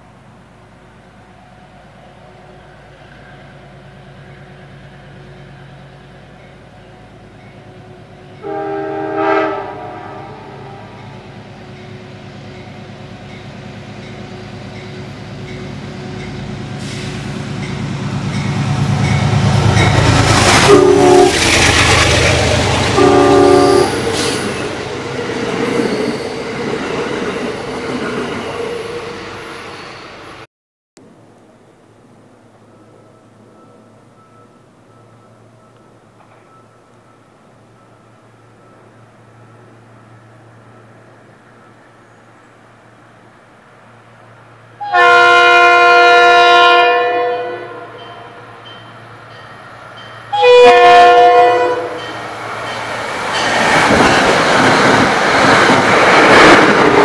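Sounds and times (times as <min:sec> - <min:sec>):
train wheels rumbling on rails: 0:00.0 - 0:30.4, 0:48.0 - 0:57.0
train horn: 0:07.9 - 0:11.2, 0:18.5 - 0:21.6, 0:22.2 - 0:26.4, 0:44.8 - 0:48.7, 0:50.3 - 0:52.2.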